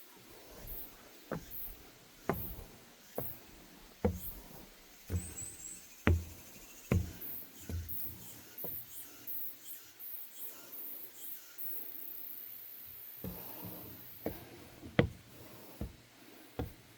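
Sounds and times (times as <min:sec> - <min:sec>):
footsteps on wooden boardwalk: 0:00.2 - 0:09.0, 0:13.2 - 0:16.9.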